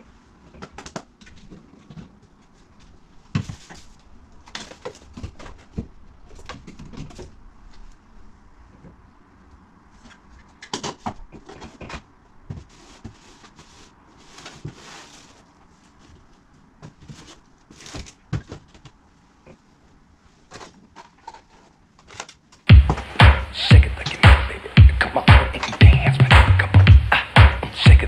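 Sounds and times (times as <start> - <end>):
loud music with heavy beat: 22.7 - 28.0.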